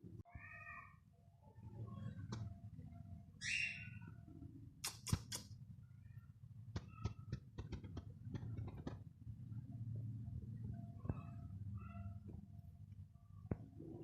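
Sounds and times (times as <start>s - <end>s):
sharp clicks and taps: 4.8s - 5.6s, 6.7s - 9.0s.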